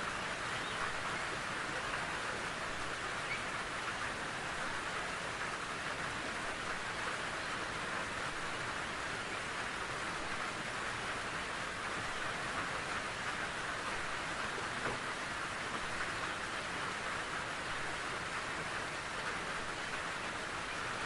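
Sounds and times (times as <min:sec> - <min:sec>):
rain falling in forest: 0:00.0 - 0:21.0.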